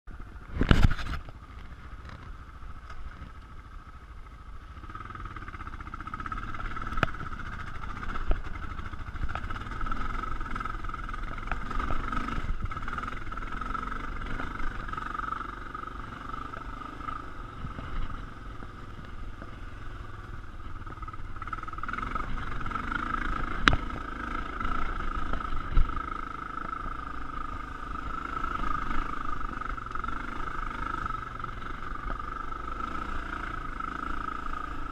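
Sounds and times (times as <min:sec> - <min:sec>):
dirt bike engine under load: 0:00.5 - 0:03.5.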